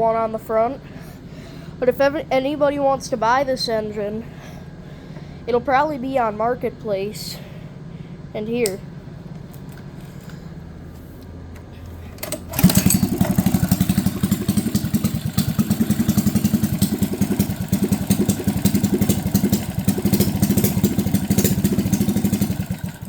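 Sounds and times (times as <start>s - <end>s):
person speaking: 1.8s - 4.3s, 5.5s - 7.6s, 8.3s - 8.9s
small engine pull-started and running: 11.6s - 23.0s.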